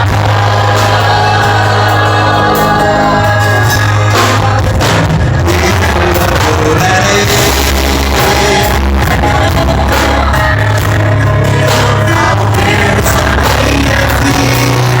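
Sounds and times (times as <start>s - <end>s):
band playing christian music: 0.0s - 15.0s
person singing: 0.0s - 15.0s.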